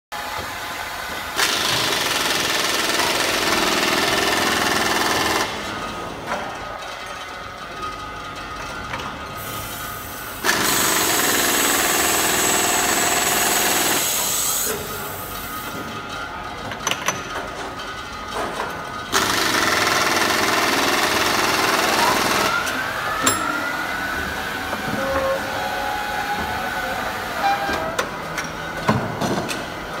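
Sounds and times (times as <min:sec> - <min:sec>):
boring machine running: 0:00.2 - 0:16.8, 0:17.8 - 0:30.0
rising machine whine: 0:21.9 - 0:28.6.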